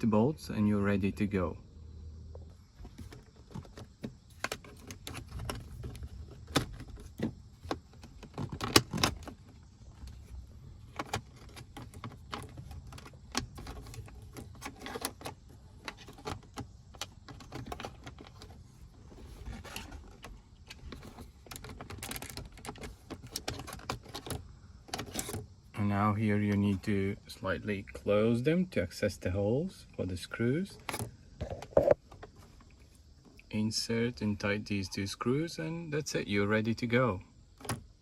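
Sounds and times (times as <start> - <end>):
plastic clicks and rattles: 10.9 - 25.4.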